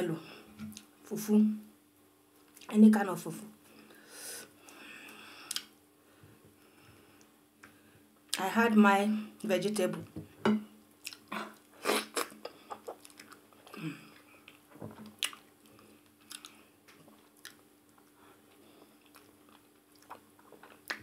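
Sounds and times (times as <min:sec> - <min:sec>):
sharp mouth clicks and smacks: 0:05.5 - 0:05.7, 0:11.0 - 0:11.3
chewing and mouth sounds: 0:11.0 - 0:21.0.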